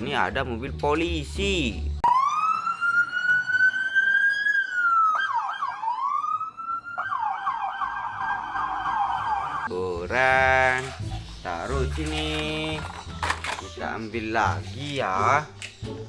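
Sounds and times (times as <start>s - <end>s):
electronic police siren: 2.0s - 9.7s.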